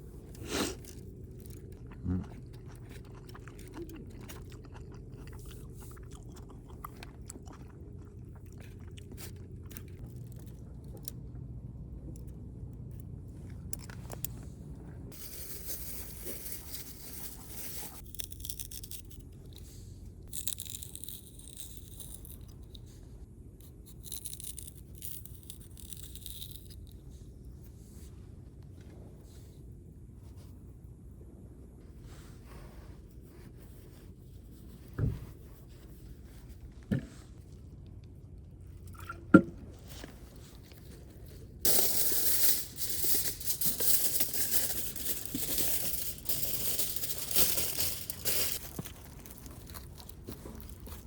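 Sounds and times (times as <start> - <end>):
person chewing crunchy food: 0.1 - 11.4, 17.3 - 22.8, 43.7 - 51.0.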